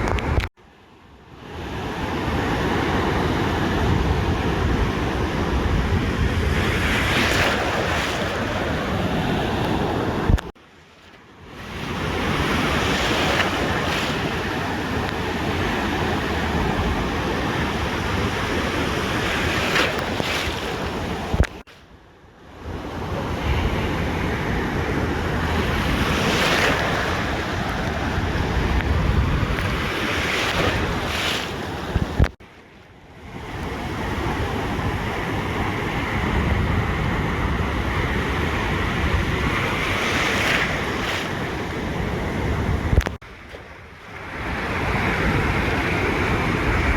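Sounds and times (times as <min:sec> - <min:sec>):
ocean waves breaking: 0:00.0 - 0:00.5, 0:01.3 - 0:22.0, 0:22.6 - 0:46.9
wind buffeting microphone: 0:02.9 - 0:10.5, 0:22.7 - 0:32.4, 0:44.2 - 0:46.9.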